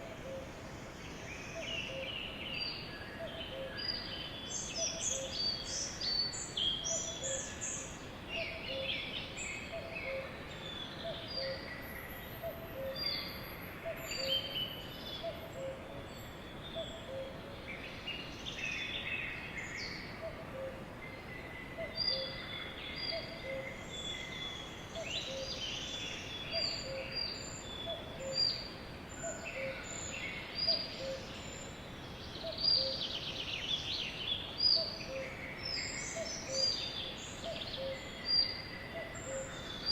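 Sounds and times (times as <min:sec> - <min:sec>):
outdoor background hiss: 0:00.0 - 0:39.9.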